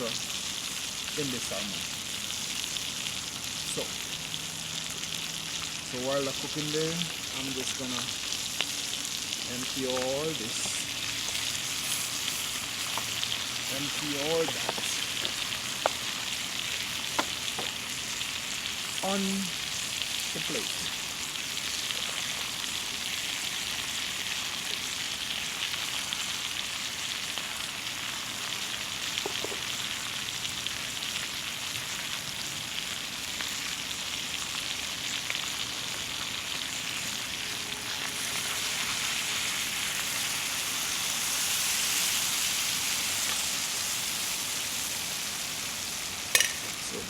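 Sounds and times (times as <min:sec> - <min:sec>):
fish sizzling in butter in a pan: 0:00.0 - 0:47.0.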